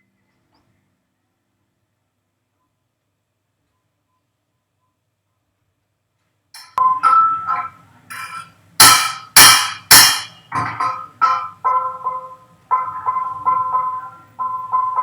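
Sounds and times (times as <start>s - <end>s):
metal bell struck: 6.6s - 15.0s.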